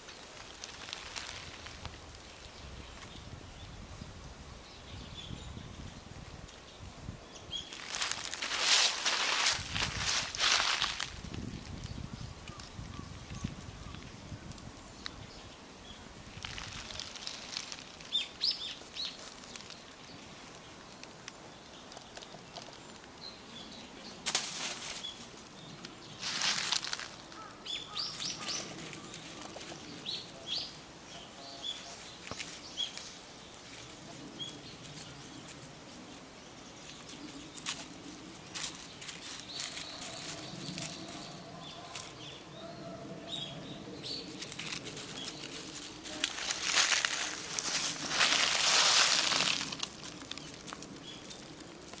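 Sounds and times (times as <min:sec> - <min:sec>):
small birds chirping: 0:04.6 - 0:24.3, 0:24.9 - 0:52.0.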